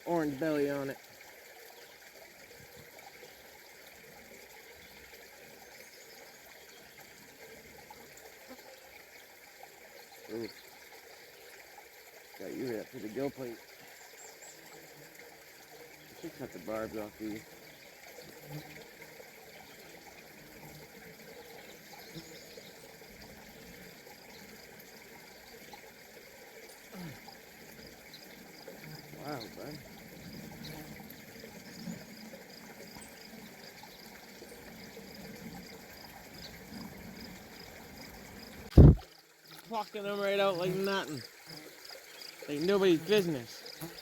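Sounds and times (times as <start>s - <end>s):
faint brook flowing: 0.0s - 44.0s.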